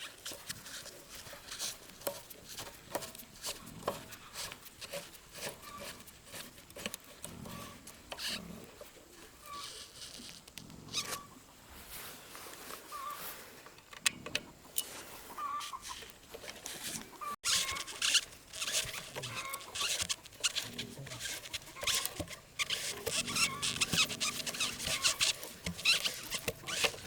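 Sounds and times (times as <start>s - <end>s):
scraping rustling and clicking: 0.0s - 11.3s, 13.6s - 27.0s
short squeaks: 5.4s - 6.1s, 9.4s - 11.4s, 17.2s - 27.0s.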